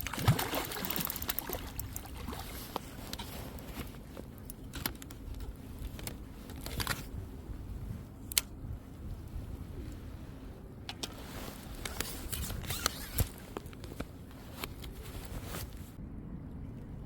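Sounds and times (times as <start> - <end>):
sharp handling clicks: 8.2 - 8.6
low rumble: 15.4 - 17.0.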